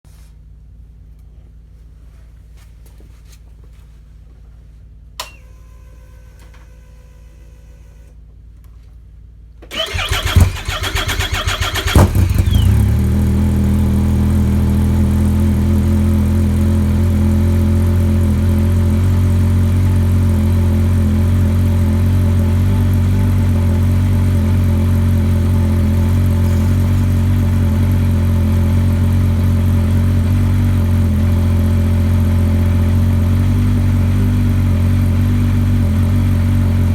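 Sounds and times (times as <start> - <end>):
click: 5.2 - 5.4
snowmobile engine starting and idling: 9.7 - 36.9.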